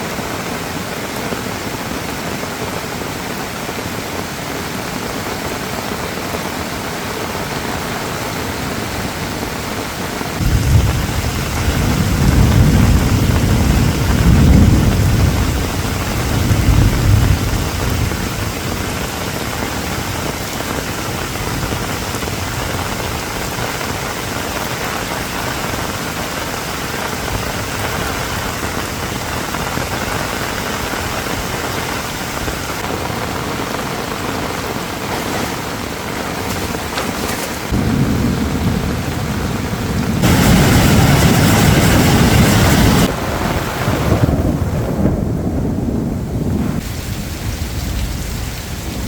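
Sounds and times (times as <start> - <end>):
heavy rain falling: 0.0 - 49.0
low rumble: 37.7 - 43.3.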